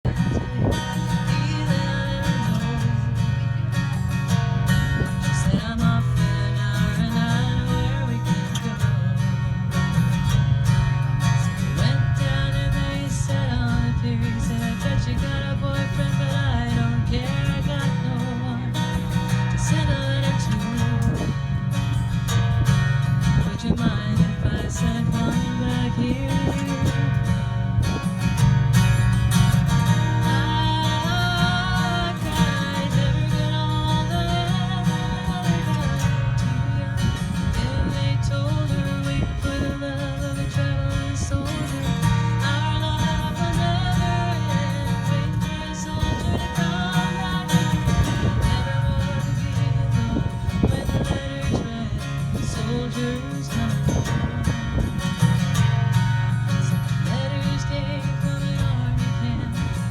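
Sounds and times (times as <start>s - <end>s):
acoustic guitar: 0.0s - 59.9s
person singing: 29.9s - 54.6s.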